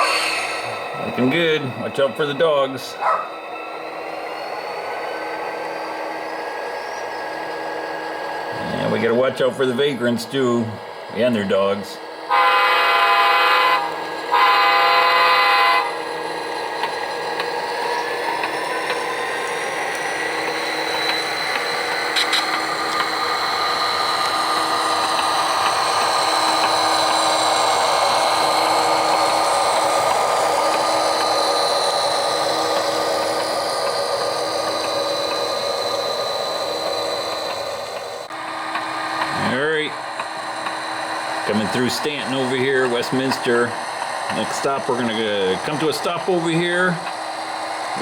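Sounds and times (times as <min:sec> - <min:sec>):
diesel engine sound running: 0:00.0 - 0:48.0
whine and hiss: 0:00.0 - 0:48.0
model train horn blasts: 0:12.3 - 0:16.0.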